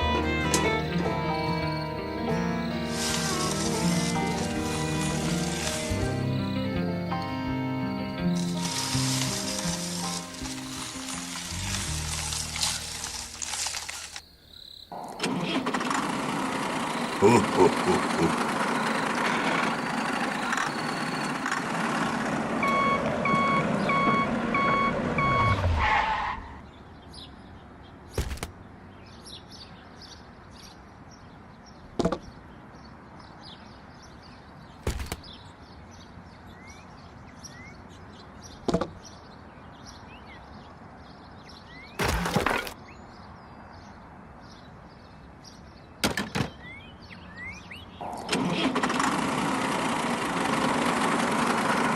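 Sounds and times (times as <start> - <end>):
mini truck motor running: 0.0 - 7.4, 8.1 - 14.2, 15.0 - 25.4, 48.0 - 51.9
reversing beeps: 22.6 - 25.6.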